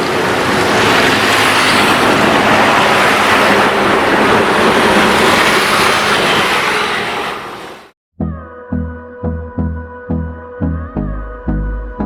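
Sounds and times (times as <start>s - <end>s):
vehicle road and wind noise: 0.0s - 7.9s.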